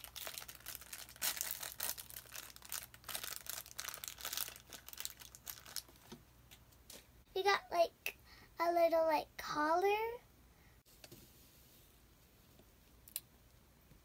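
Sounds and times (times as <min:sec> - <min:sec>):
plastic packaging crinkling and tearing: 0:00.0 - 0:06.2.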